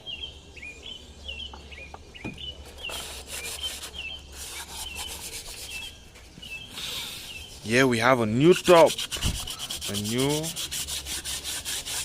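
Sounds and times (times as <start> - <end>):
hand sanding metal engine block: 2.7 - 6.0, 7.4 - 12.0.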